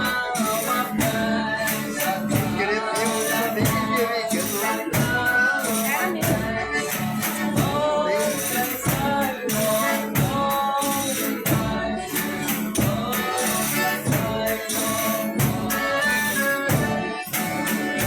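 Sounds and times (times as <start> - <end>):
voices singing folk verse: 0.0 - 18.0
tambourine jingling: 6.8 - 18.0.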